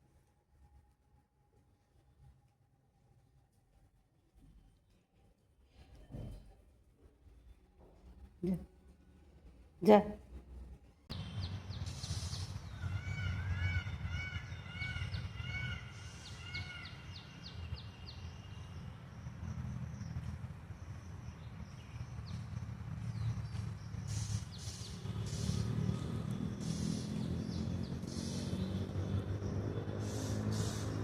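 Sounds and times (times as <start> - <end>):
low rumble of wind: 5.9 - 30.0
small birds chirping: 11.1 - 31.0.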